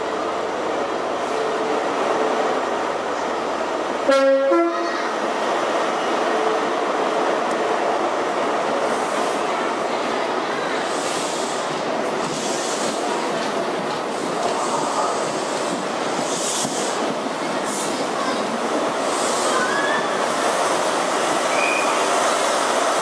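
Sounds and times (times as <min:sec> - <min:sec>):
train wheel and rail noise: 0:00.0 - 0:23.0
train horn two notes: 0:04.1 - 0:05.0.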